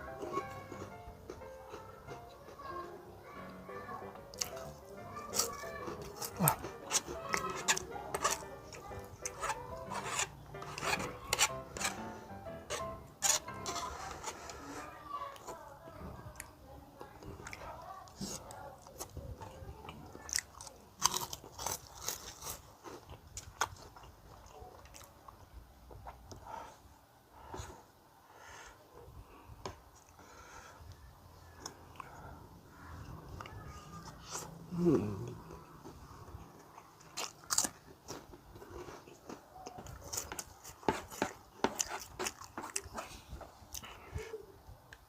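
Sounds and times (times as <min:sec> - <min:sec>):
crunchy snack biting and chewing: 0:04.3 - 0:12.1, 0:20.2 - 0:25.1, 0:36.7 - 0:43.9.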